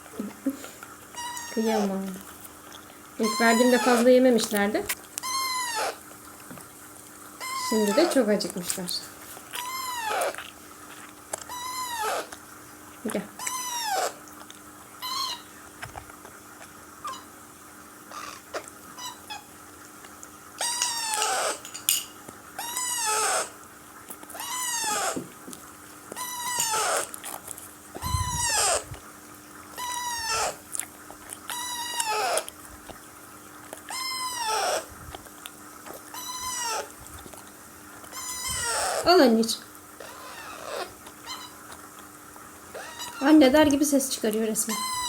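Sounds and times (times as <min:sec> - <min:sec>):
parakeet begging calls: 0:01.2 - 0:02.1, 0:03.2 - 0:04.5, 0:05.2 - 0:06.0, 0:07.4 - 0:08.4, 0:09.6 - 0:10.4, 0:11.5 - 0:12.3, 0:13.4 - 0:14.2, 0:15.0 - 0:15.6, 0:17.0 - 0:17.4, 0:18.1 - 0:19.5, 0:20.6 - 0:21.8, 0:22.6 - 0:23.6, 0:24.3 - 0:25.2, 0:26.2 - 0:27.1, 0:28.0 - 0:28.9, 0:29.8 - 0:30.6, 0:31.5 - 0:32.5, 0:33.9 - 0:34.9, 0:36.1 - 0:36.9, 0:38.1 - 0:41.7, 0:42.7 - 0:43.4, 0:44.7 - 0:45.0.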